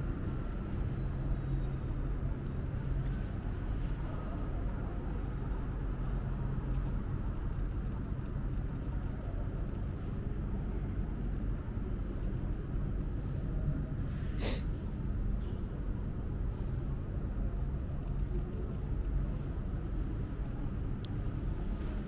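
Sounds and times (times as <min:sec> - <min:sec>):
subway station rumble and hum: 0:00.0 - 0:22.0
brief hiss: 0:14.4 - 0:14.7.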